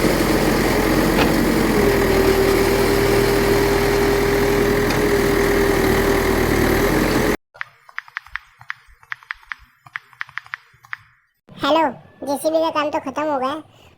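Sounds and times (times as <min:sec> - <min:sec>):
engine drone: 0:00.0 - 0:07.4.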